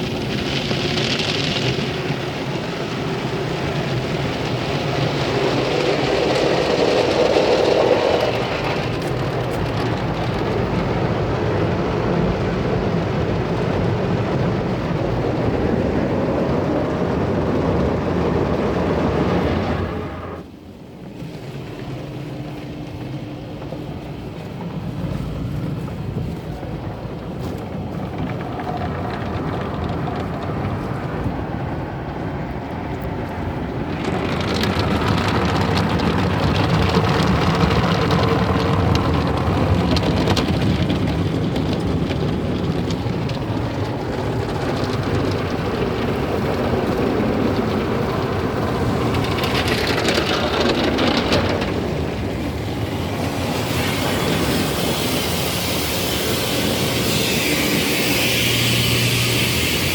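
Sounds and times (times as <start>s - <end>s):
car wash machinery working: 0.0s - 59.9s
water spraying: 51.8s - 59.9s
hissy spray: 53.2s - 59.9s.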